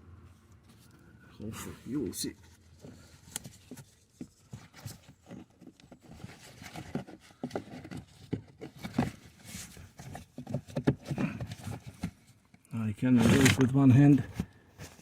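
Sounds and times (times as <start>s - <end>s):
light knocks and scrapes: 0.6s - 12.4s.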